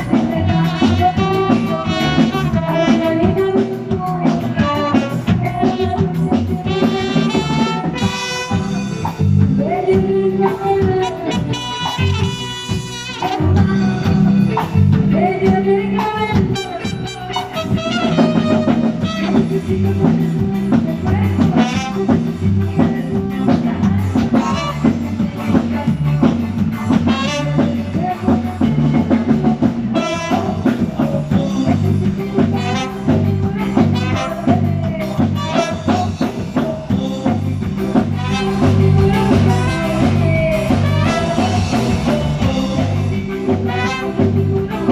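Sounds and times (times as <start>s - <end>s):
latin band music: 0.0s - 44.9s.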